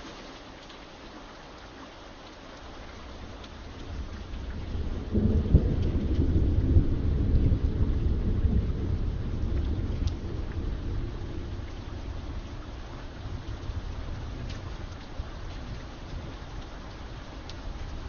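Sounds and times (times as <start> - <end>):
steady rain: 0.0 - 18.0
thunder rumbling: 3.6 - 18.0.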